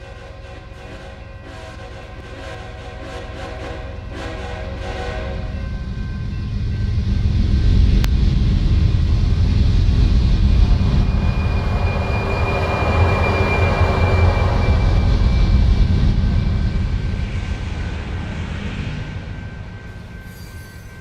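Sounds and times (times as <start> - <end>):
train horn: 0.0 - 7.0
locomotive engine and rail rumble: 0.0 - 21.0
thin high tone: 8.9 - 21.0.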